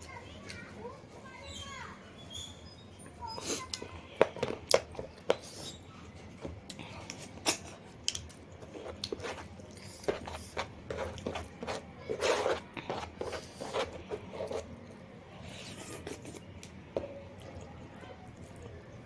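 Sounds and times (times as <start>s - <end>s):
person chewing noisily: 3.5s - 19.0s.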